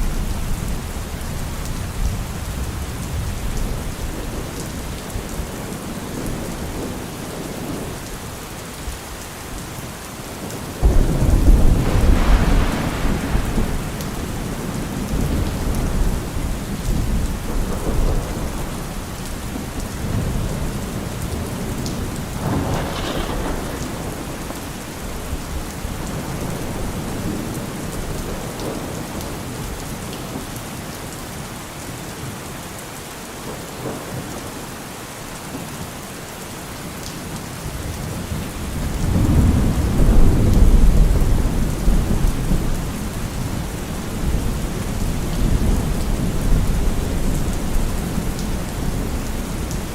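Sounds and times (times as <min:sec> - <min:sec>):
steady rain: 0:00.0 - 0:49.9
thunder clap and rumble: 0:10.4 - 0:29.8, 0:37.6 - 0:49.9.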